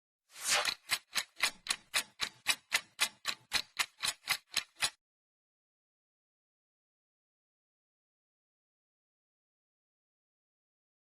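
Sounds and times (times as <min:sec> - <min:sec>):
sharp ticks: 0:00.6 - 0:05.0.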